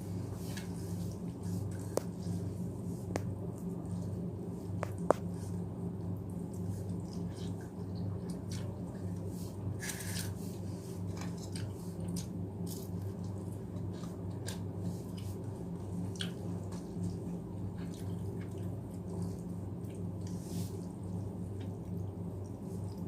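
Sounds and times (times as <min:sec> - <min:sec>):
steady low hum: 0:00.0 - 0:23.0
chewing and mouth noise: 0:06.2 - 0:09.3, 0:11.1 - 0:23.0.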